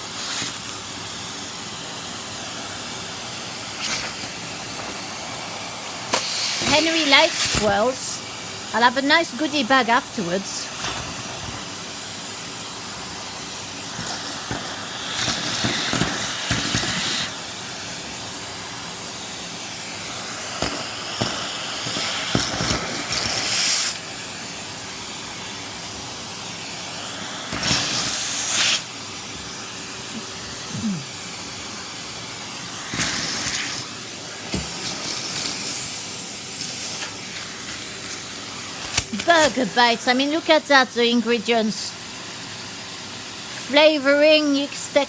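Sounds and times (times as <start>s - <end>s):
vacuum cleaner running: 0.0s - 45.0s.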